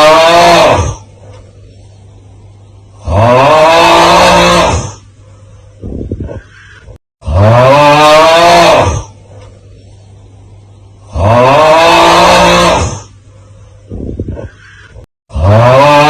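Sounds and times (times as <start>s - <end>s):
rattling snort: 3.0s - 5.1s, 11.0s - 13.2s.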